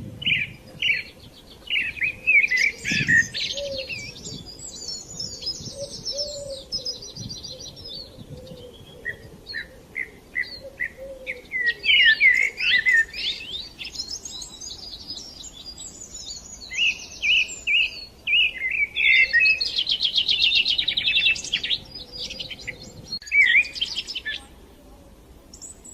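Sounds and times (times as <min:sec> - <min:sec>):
birds chirping and singing: 0:00.0 - 0:24.6, 0:25.5 - 0:25.9.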